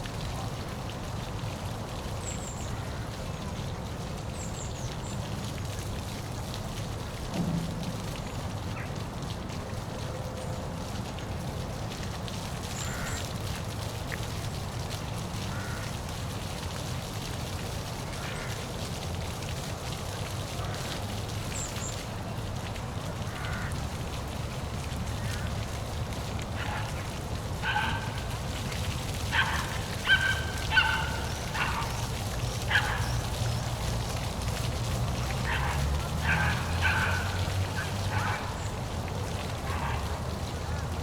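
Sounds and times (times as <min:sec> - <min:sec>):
waterfall rushing: 0:26.0 - 0:41.0
bird calls: 0:29.3 - 0:33.6.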